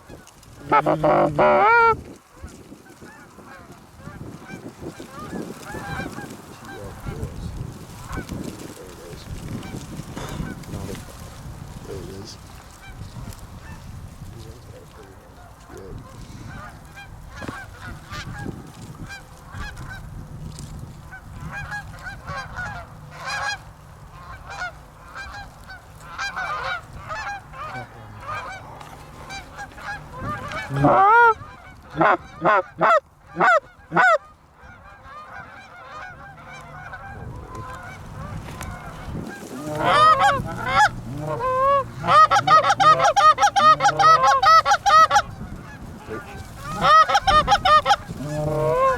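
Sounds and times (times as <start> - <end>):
goose honks: 0.0 - 7.4, 15.4 - 20.0, 21.4 - 48.9
goose clucks: 0.1 - 7.4, 15.3 - 20.0, 21.1 - 48.9.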